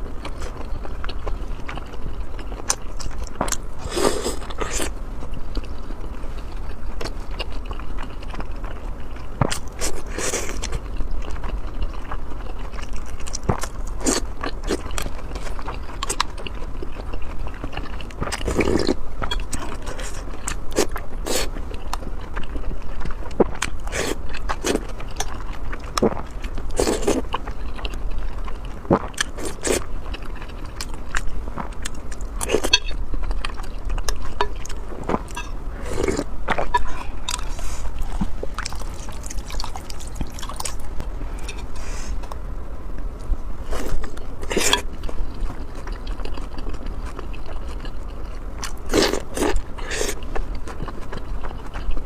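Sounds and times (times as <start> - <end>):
chewing and biting: 0.1 - 42.4, 43.7 - 52.0
low hum: 29.9 - 48.9.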